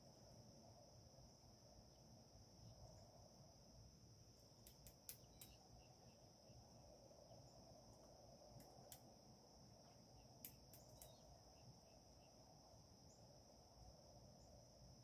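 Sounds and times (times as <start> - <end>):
insect drone: 0.0 - 15.0
faint sharp clicks: 4.6 - 5.6, 8.6 - 9.1, 10.4 - 11.3.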